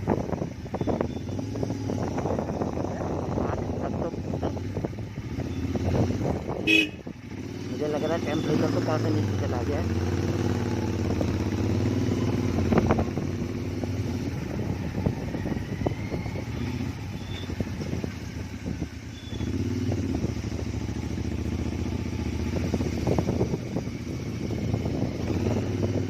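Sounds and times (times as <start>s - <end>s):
motorcycle engine riding: 0.0s - 26.0s.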